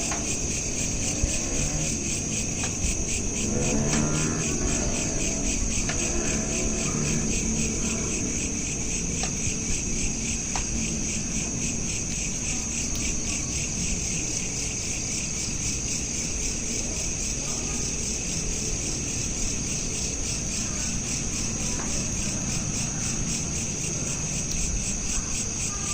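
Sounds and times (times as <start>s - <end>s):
low background rumble: 0.0s - 16.2s
crickets chirping: 0.0s - 25.9s.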